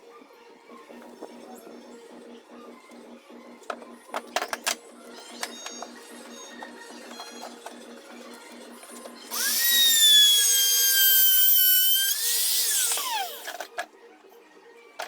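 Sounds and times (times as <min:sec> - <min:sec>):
electric drill whining: 0:09.3 - 0:13.7.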